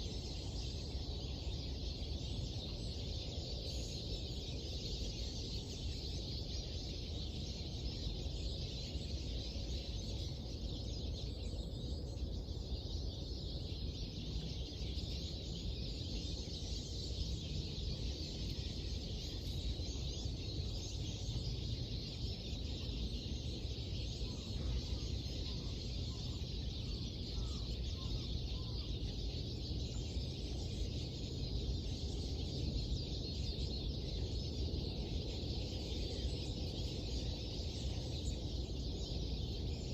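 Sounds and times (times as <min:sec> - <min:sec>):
small birds chirping and singing: 0:00.0 - 0:39.9.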